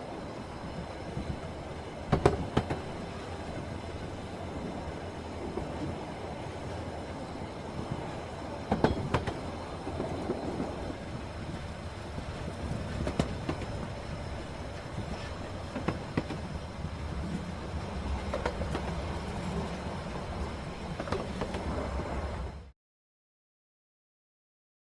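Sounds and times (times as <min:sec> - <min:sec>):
electric train rumbling on rails: 0:00.0 - 0:22.7
train wheels clacking: 0:02.0 - 0:04.2, 0:07.8 - 0:21.9.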